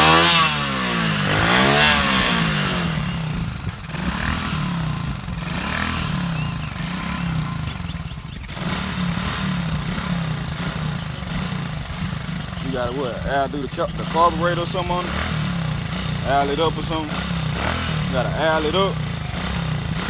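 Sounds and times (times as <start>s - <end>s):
small engine running unevenly: 0.0s - 20.0s.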